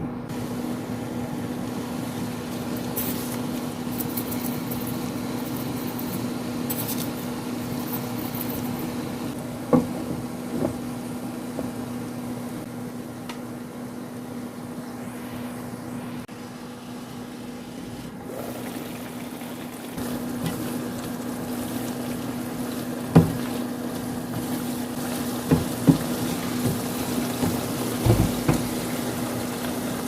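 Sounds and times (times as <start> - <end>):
fan humming: 0.0 - 30.0
pan hissing: 14.8 - 30.0.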